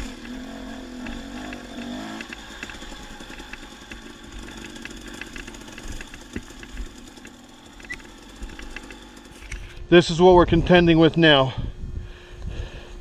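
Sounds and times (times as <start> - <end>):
dirt bike engine idling: 0.0 - 11.8
small clicks and knocks: 1.0 - 9.7.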